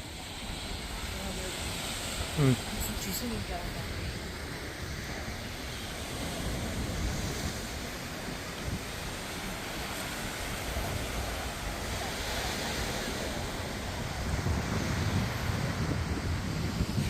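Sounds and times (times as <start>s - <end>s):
ocean surf washing: 0.0s - 17.0s
wind buffeting microphone: 0.0s - 17.0s.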